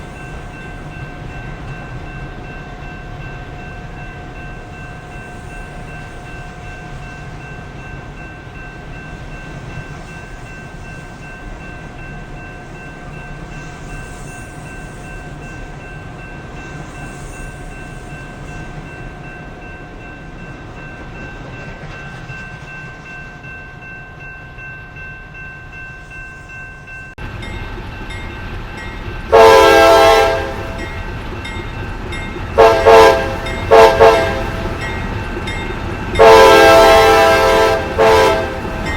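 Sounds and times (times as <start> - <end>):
train rumbling: 0.0 - 38.9
locomotive horn blasts: 29.3 - 30.9, 32.6 - 34.9, 36.2 - 38.9.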